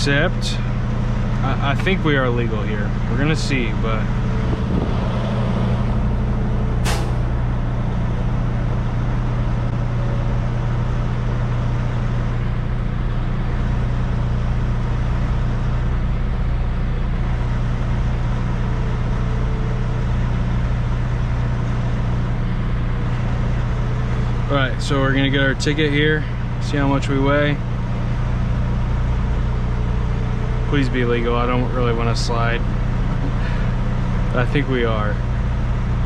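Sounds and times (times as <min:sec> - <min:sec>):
diesel truck engine idling: 0:00.0 - 0:36.0
sharp click: 0:06.8 - 0:07.4.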